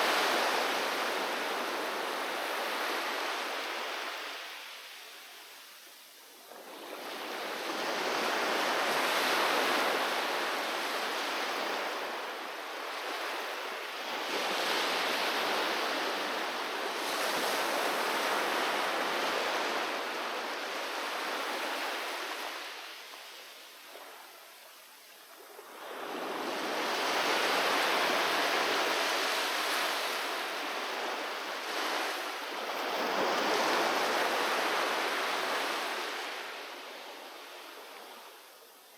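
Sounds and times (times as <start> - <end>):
sea waves breaking ashore: 25.4 - 38.2.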